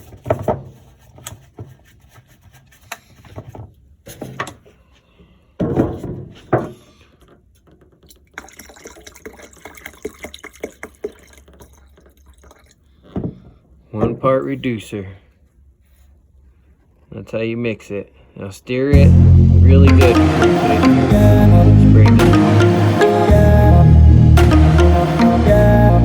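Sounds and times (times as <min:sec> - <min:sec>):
liquid pouring into cup: 0:08.1 - 0:12.8.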